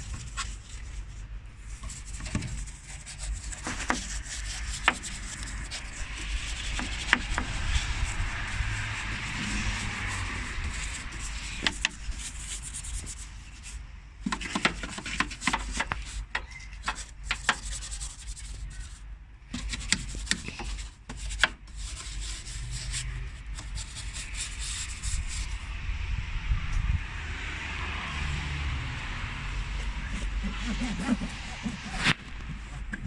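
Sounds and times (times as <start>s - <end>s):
steady low rumble: 0.0s - 14.2s, 22.5s - 33.0s
stiff brush scrubbing: 0.0s - 25.6s, 29.8s - 33.0s
brush knocking against parts: 1.8s - 13.2s, 14.2s - 24.4s.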